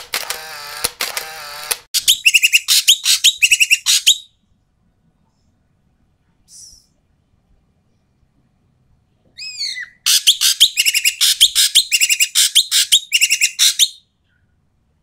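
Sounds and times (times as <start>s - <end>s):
bird calling harshly: 2.0s - 4.3s, 9.4s - 14.0s.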